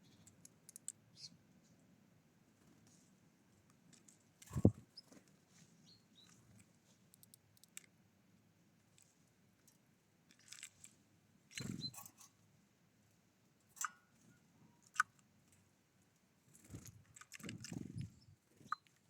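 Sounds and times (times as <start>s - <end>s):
birds tapping and clicking: 0.1s - 1.0s, 11.5s - 12.3s
wings fluttering: 4.5s - 5.3s, 11.5s - 12.1s, 16.5s - 18.8s.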